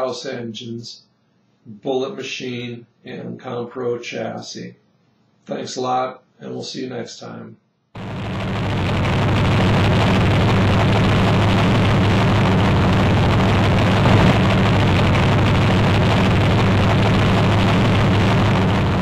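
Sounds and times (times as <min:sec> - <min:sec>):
race car engine at high revs: 0:08.0 - 0:19.0.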